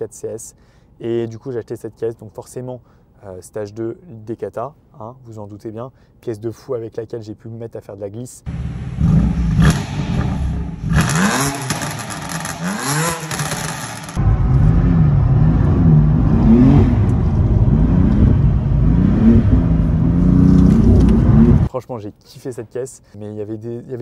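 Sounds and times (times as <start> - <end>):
car engine revving: 8.5 - 21.7
engine under hard driving: 8.5 - 21.7.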